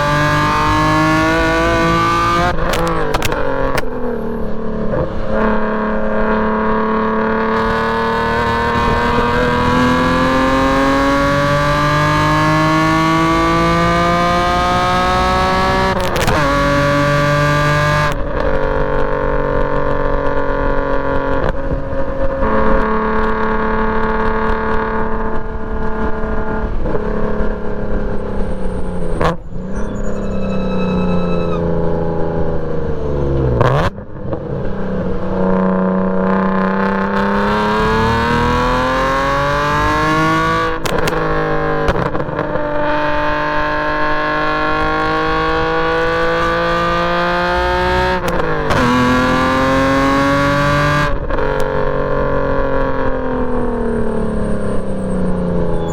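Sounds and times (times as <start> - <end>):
car engine revving through gears: 0.0 - 55.9.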